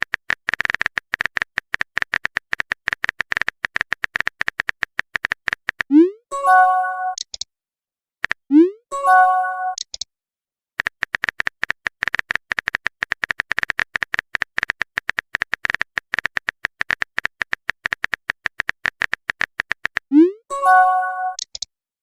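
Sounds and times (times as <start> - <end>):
keyboard typing clicks: 0.0 - 7.5, 8.2 - 10.1, 10.8 - 21.7
message alert chime: 5.9 - 7.2, 8.5 - 9.8, 20.1 - 21.4.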